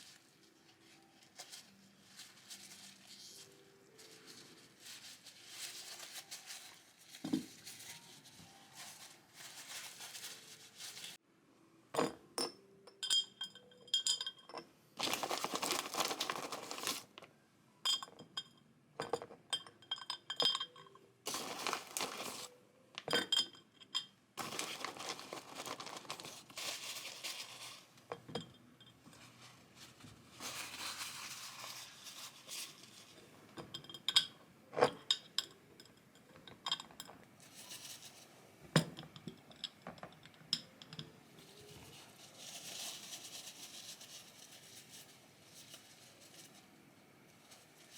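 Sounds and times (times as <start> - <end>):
rustling: 0.0 - 11.2, 15.0 - 17.2, 21.3 - 22.5, 24.4 - 28.1, 29.0 - 33.2, 41.4 - 47.9
glass jar clinking: 12.0 - 17.0, 17.9 - 26.2
pouring: 15.0 - 17.1, 21.3 - 22.5, 24.4 - 27.8.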